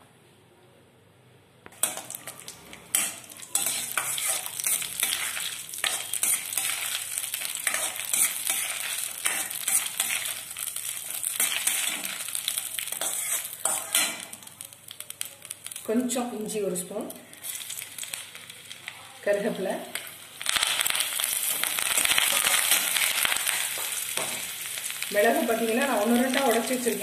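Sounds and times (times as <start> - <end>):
nuts sizzling in hot fat: 1.7 - 27.0.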